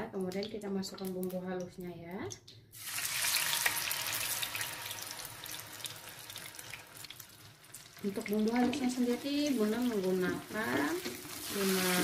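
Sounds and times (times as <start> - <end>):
spice paste sizzling in oil: 2.8 - 12.0.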